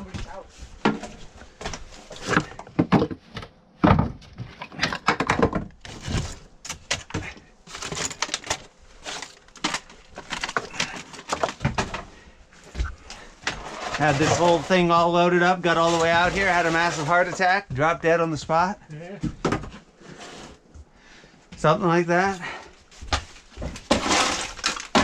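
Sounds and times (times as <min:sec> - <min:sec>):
junk knocking and clattering: 0:02.4 - 0:08.6.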